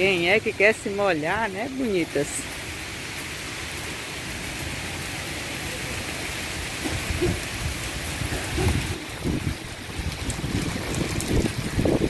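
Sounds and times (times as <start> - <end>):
rain falling: 0.0 - 12.0
wind gusting against microphone: 4.6 - 12.0.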